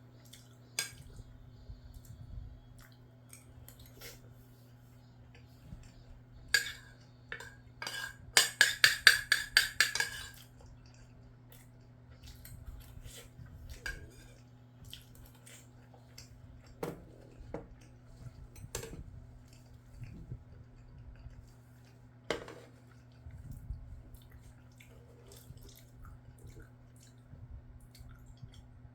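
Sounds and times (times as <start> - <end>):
metal cutlery clinking on a dish: 6.6 - 10.4.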